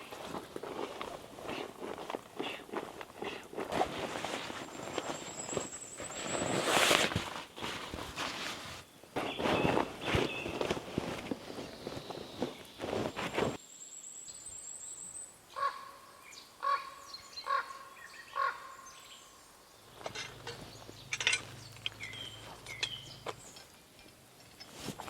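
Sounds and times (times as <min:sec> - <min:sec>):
footstep rustling: 0:00.0 - 0:13.6, 0:19.9 - 0:23.8
bird calls and chirps: 0:04.3 - 0:06.8, 0:08.9 - 0:10.8, 0:11.4 - 0:24.7
high thin bird trill: 0:20.0 - 0:23.7.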